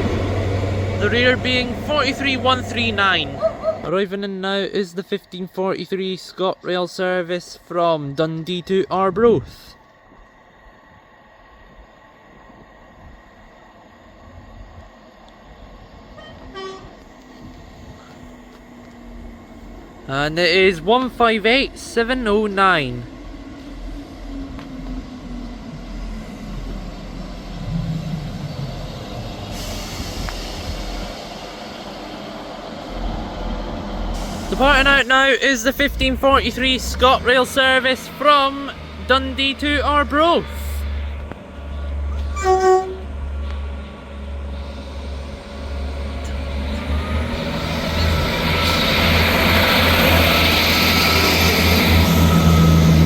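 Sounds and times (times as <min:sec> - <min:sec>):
diesel train engine idling: 0:00.0 - 0:08.8, 0:09.8 - 0:53.0
compressed air hissing: 0:29.4 - 0:31.2, 0:34.1 - 0:34.9.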